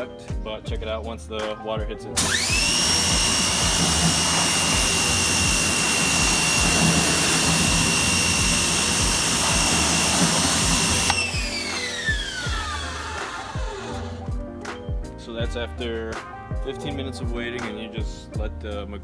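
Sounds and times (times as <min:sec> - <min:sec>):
pressure washer motor whine: 0:02.2 - 0:14.4.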